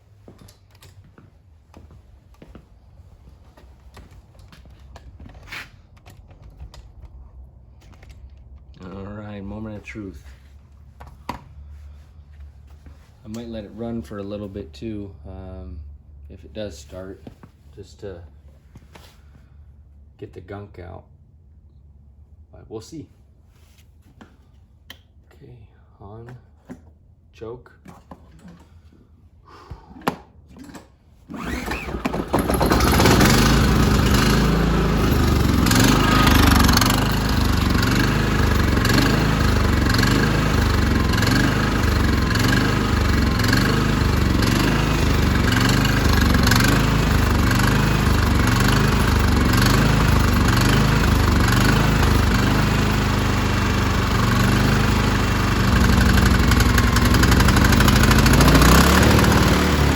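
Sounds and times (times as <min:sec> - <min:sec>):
generator engine starting and running: 0:00.0 - 0:17.0, 0:29.9 - 0:59.9.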